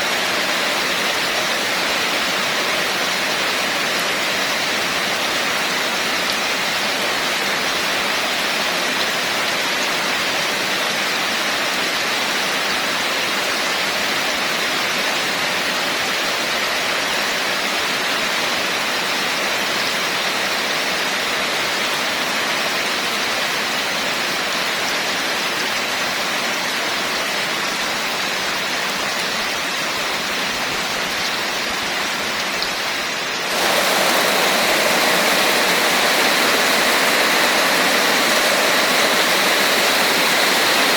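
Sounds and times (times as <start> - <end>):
heavy rain hissing: 0.0 - 10.7, 27.4 - 40.9.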